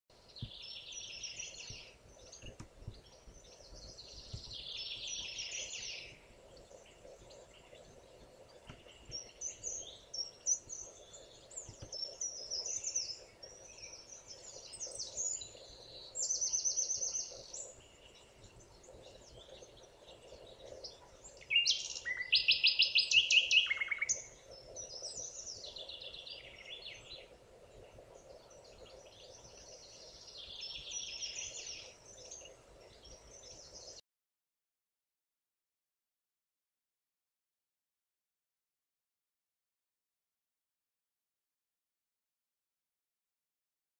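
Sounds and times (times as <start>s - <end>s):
faint steady background noise: 0.1s - 34.0s
songbirds singing and chirping: 0.1s - 34.0s.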